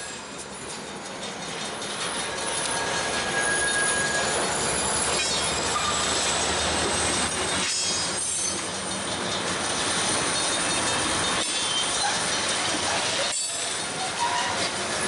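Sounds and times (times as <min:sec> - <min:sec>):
high squeal of wheels on rail: 0:00.0 - 0:15.0
train wheels rumbling and rattling: 0:00.0 - 0:15.0.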